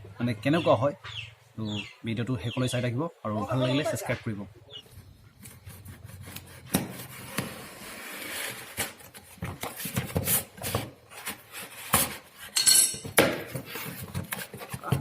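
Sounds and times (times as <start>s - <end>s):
packaging rubbing and scraping: 5.4s - 12.6s.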